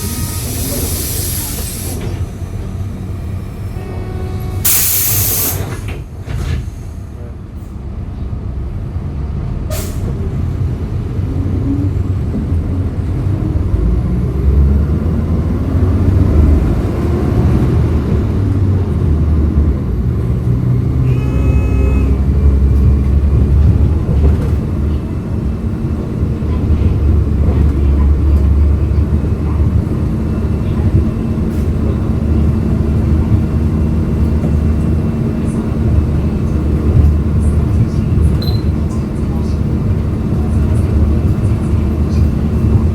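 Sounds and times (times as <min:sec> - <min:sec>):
bus engine rumble: 0:00.0 - 0:42.9
short pitched tone: 0:21.0 - 0:22.3.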